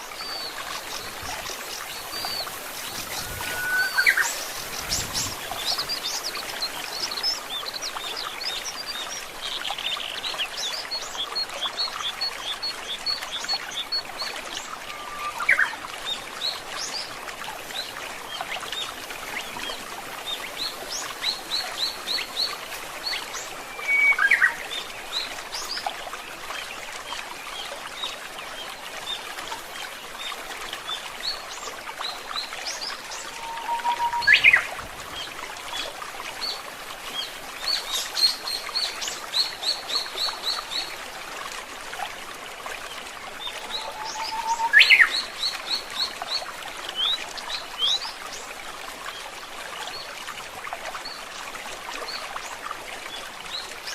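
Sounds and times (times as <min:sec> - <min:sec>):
stream trickling: 0:00.0 - 0:53.9
sweeping whistled bird calls: 0:01.7 - 0:07.4, 0:23.7 - 0:24.6, 0:32.7 - 0:35.8, 0:43.6 - 0:45.5.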